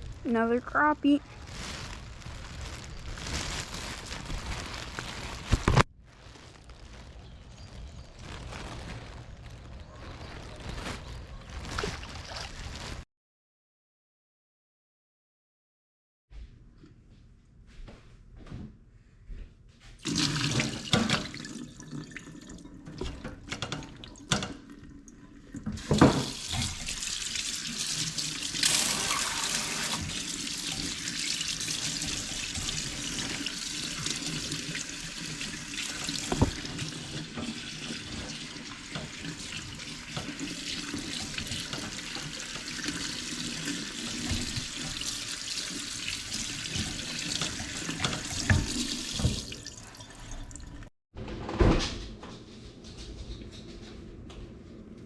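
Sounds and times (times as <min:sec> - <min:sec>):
tap water running into sink: 0:20.0 - 0:50.9.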